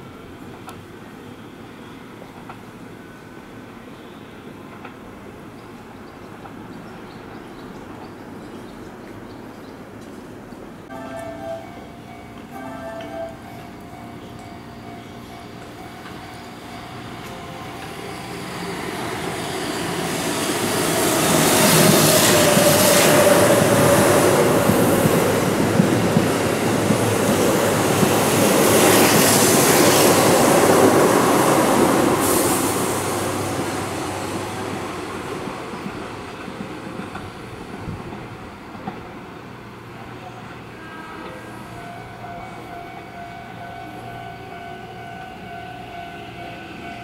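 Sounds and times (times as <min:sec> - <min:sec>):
train wheels clattering on rail: 0:15.4 - 0:39.4.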